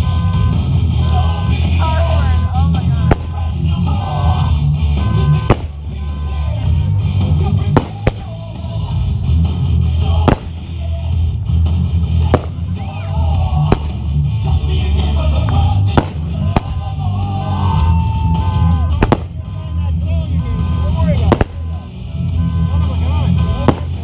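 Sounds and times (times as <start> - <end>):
music with heavy low beat: 0.0 - 24.0
firework bangs: 3.0 - 3.6, 5.2 - 6.0, 7.6 - 8.6, 10.2 - 10.8, 12.2 - 12.8, 13.6 - 14.1, 15.9 - 16.9, 19.0 - 19.5, 21.2 - 21.8, 23.6 - 24.0.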